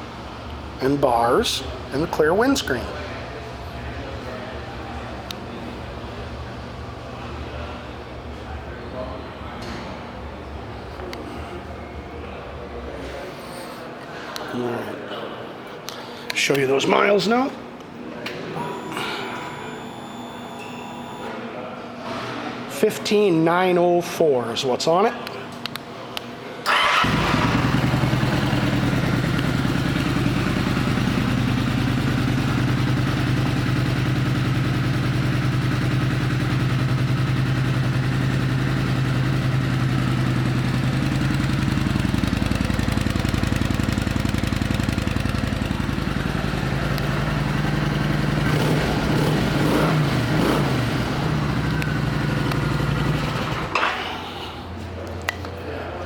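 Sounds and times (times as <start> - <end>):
engine revving: 26.7 - 30.7, 46.2 - 53.7
motorcycle engine starting and idling: 26.7 - 54.2.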